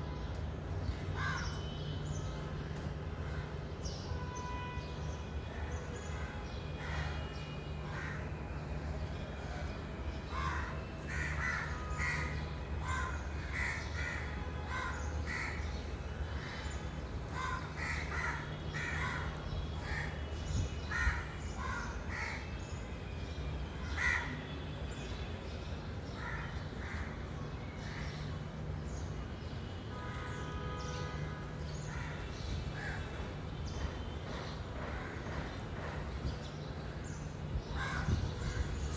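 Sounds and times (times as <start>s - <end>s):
crows cawing: 10.3s - 15.6s, 17.4s - 20.1s.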